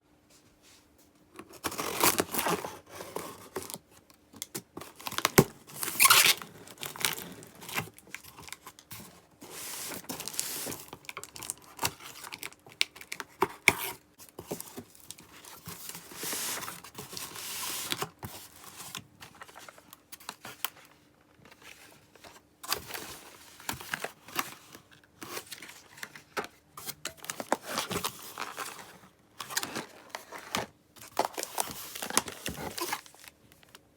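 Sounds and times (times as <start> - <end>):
packaging ripping and rustling: 1.5 - 3.8, 4.8 - 20.9, 22.7 - 33.8.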